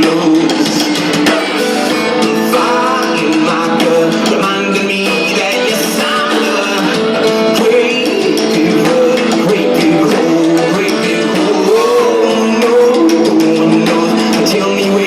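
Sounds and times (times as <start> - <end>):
live rock band playing: 0.0 - 15.0
wavering guitar melody: 0.0 - 15.0.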